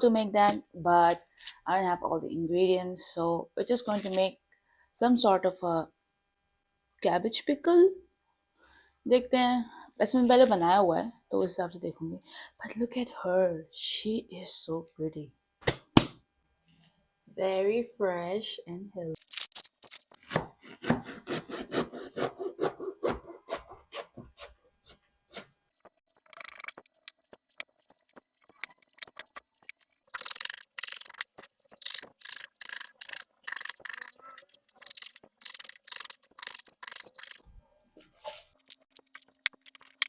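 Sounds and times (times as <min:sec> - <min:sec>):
knife cutting cabbage on board: 0:20.2 - 0:24.6.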